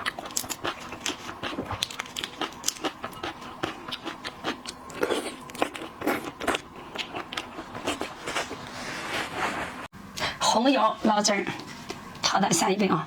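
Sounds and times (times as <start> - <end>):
person chewing seafood: 0.0 - 8.8.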